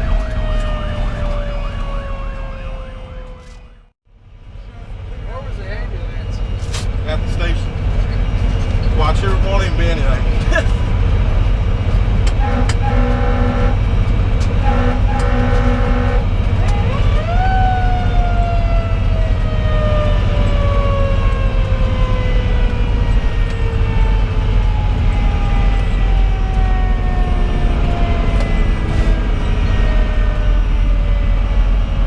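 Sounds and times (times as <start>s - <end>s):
diesel engine and road noise: 0.0s - 32.0s
air horn blasts: 12.3s - 17.1s.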